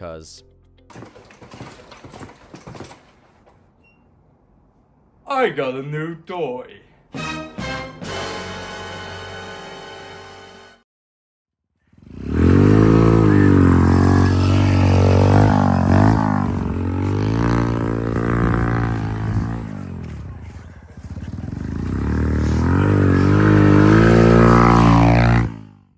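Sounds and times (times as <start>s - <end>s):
motorcycle engine revving: 0.9s - 3.3s, 11.9s - 25.9s.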